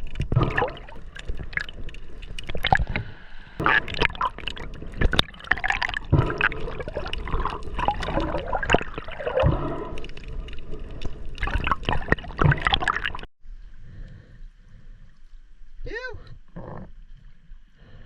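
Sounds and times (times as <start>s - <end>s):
water splashing and gurgling: 0.0s - 13.3s.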